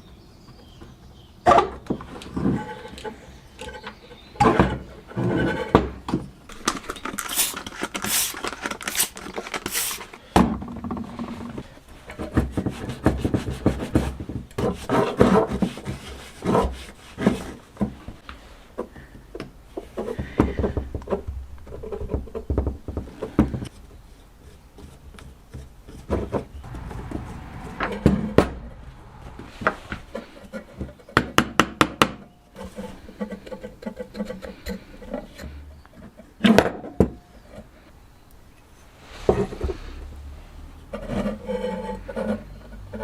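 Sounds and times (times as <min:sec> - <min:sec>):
metal parts clicking and scraping: 0:06.5 - 0:10.1.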